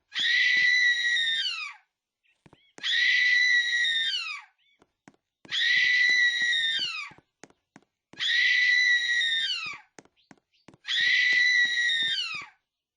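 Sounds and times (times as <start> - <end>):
loud high-pitched scream: 0.1 - 1.8, 2.8 - 4.5, 5.5 - 7.1, 8.2 - 9.8, 10.9 - 12.6.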